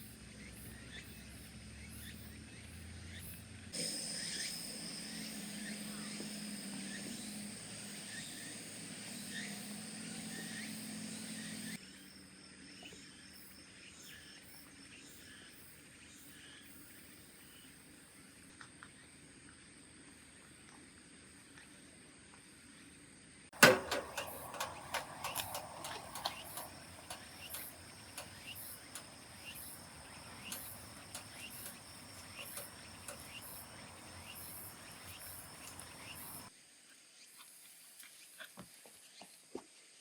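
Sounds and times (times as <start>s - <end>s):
insects chirping: 0.8s - 11.8s, 23.6s - 36.5s.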